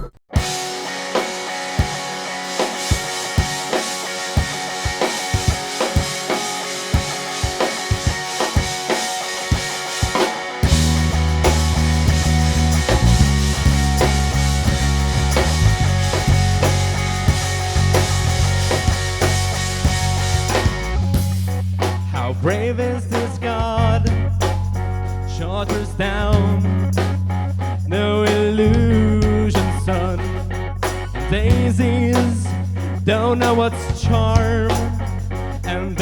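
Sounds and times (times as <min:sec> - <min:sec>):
drum kit beat: 0:00.0 - 0:24.9, 0:25.7 - 0:30.2
rock band playing live: 0:00.4 - 0:22.2
deep bass line: 0:10.6 - 0:36.0.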